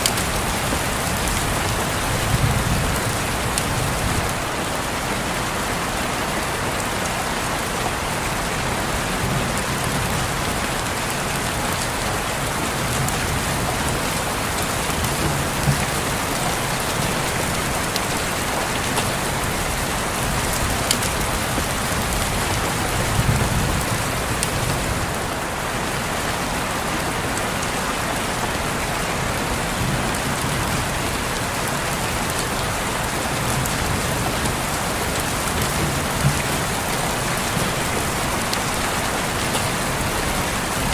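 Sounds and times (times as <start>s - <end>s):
raindrop taps: 0.0s - 4.4s, 12.5s - 25.2s, 32.3s - 40.9s
rain on a window: 0.0s - 40.9s.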